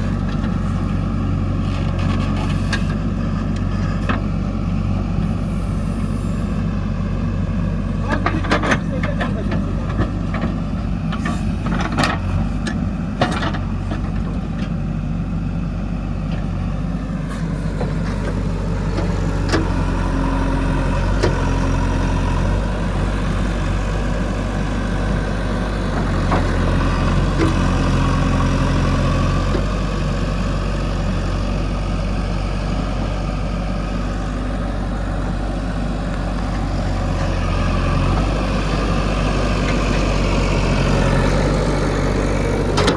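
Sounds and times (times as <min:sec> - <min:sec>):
diesel engine idling: 0:00.0 - 0:42.9
sharp engine knocks: 0:42.7 - 0:42.9.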